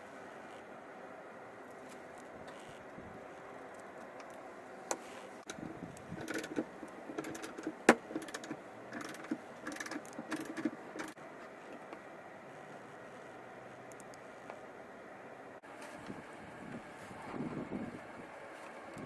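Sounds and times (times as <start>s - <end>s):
small parts and tools clicking: 3.6s - 11.2s.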